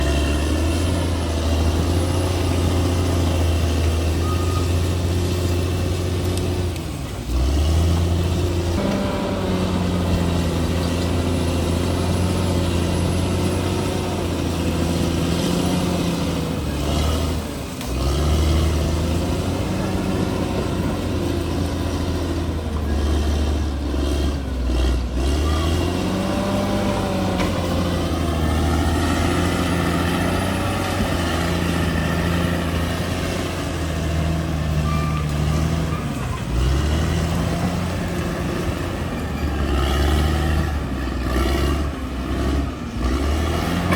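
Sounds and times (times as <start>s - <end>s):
bulldozer diesel engine under load: 0.0s - 43.9s.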